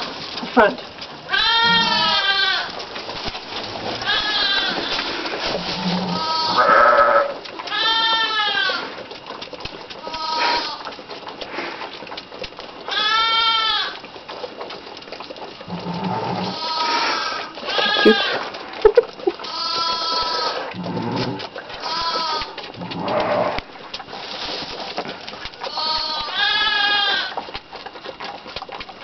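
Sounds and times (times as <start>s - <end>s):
piglets squealing: 1.3s - 2.7s, 4.0s - 5.1s, 5.7s - 8.9s, 10.1s - 10.8s, 15.7s - 23.6s, 25.7s - 27.4s
pig grunt: 3.7s - 7.4s, 10.2s - 10.8s, 15.6s - 23.7s.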